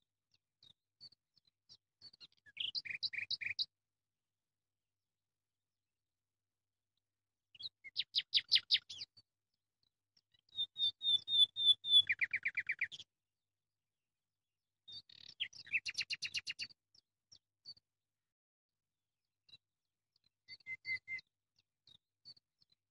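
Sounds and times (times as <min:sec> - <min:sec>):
songbird chirps and trills: 0:00.6 - 0:03.7, 0:07.5 - 0:09.2, 0:09.8 - 0:13.1, 0:14.9 - 0:17.8, 0:20.2 - 0:21.3.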